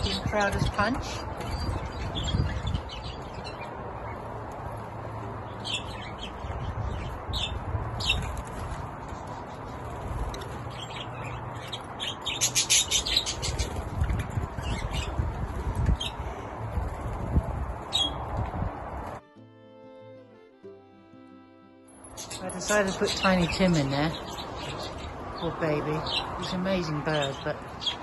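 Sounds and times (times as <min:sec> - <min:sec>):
wind rumbling on microphone: 0:00.0 - 0:11.7, 0:13.0 - 0:19.2
budgerigars chirping: 0:05.5 - 0:08.4, 0:10.4 - 0:15.2, 0:22.2 - 0:28.0
budgerigars chattering rapidly: 0:10.3 - 0:15.2, 0:22.2 - 0:28.0.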